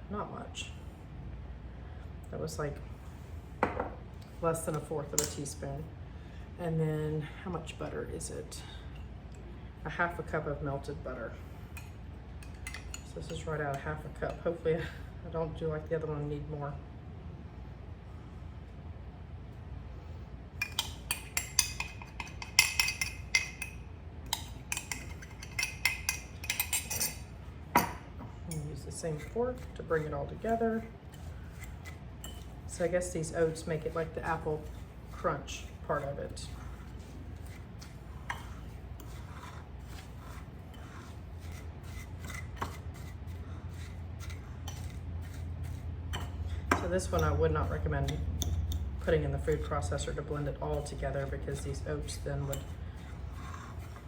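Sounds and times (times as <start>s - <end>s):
fork scraping crumbs in a bowl: 20.6s - 27.3s, 28.5s - 54.0s
fork clinking against bowl: 31.1s - 32.5s.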